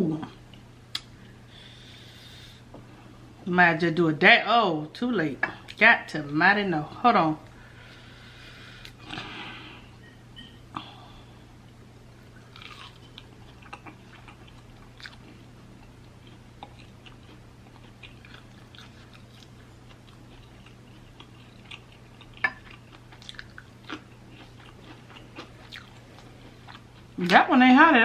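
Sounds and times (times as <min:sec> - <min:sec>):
steady low hum: 0:00.0 - 0:28.0
chewing and crunching: 0:12.2 - 0:27.4.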